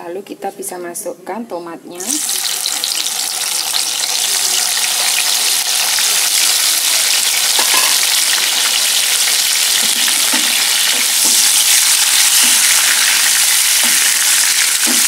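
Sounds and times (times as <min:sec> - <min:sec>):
tomatoes sizzling in oil: 0:01.9 - 0:15.0
wooden spatula knocking pan: 0:13.7 - 0:15.0.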